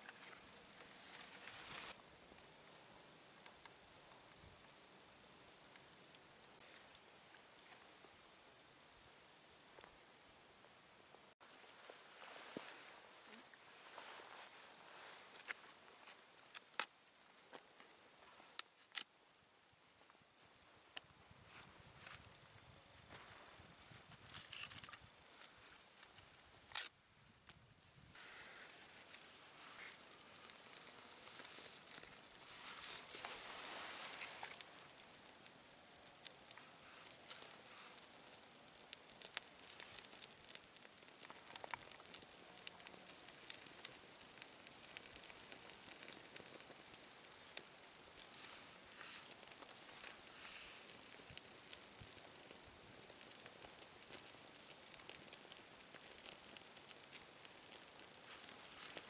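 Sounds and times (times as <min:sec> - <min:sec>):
campfire crackling and popping: 0:15.3 - 0:19.1, 0:27.5 - 0:59.0.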